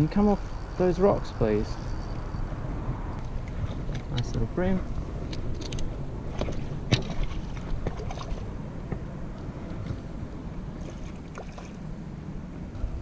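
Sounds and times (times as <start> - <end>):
water: 0.0 - 13.0
wind rumbling on microphone: 0.0 - 13.0.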